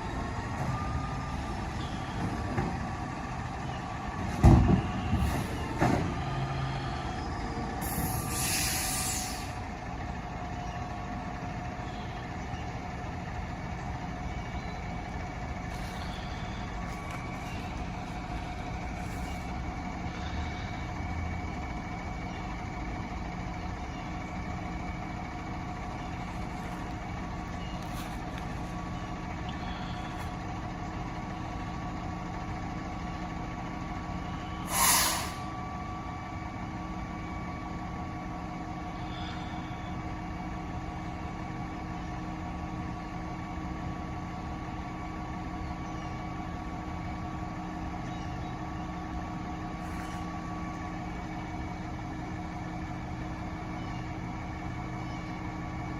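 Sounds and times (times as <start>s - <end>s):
diesel truck engine idling: 0.0s - 55.9s
air brake hiss: 7.8s - 9.6s, 34.6s - 35.5s.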